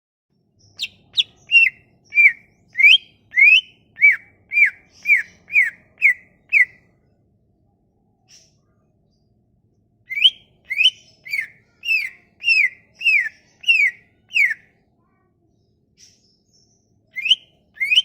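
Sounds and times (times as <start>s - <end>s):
bird whistling clear notes: 17.2s - 18.0s.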